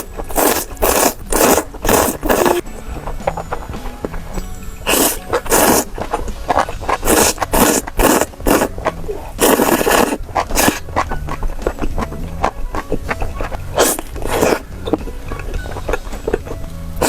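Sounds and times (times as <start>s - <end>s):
close-miked seafood eating: 0.0s - 17.0s.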